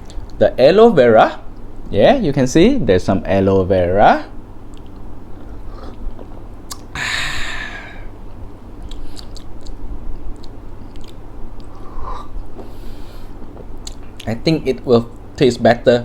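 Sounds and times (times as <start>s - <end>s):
person chewing: 4.7s - 6.9s, 8.8s - 14.3s.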